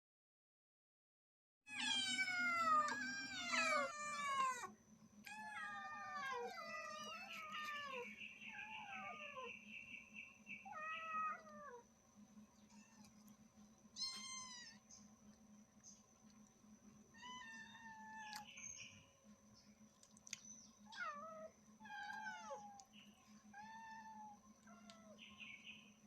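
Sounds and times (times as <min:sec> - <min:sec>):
cats meowing loudly: 0:01.7 - 0:04.7, 0:05.3 - 0:09.5, 0:10.6 - 0:11.8, 0:14.0 - 0:14.8, 0:17.2 - 0:18.4, 0:20.9 - 0:22.8, 0:23.6 - 0:25.2.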